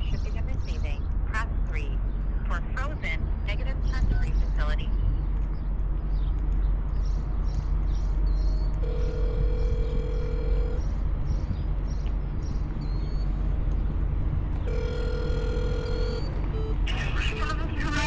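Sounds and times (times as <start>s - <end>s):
low rumble: 0.0s - 18.0s
telephone ringback tone: 8.8s - 10.8s, 14.7s - 16.8s.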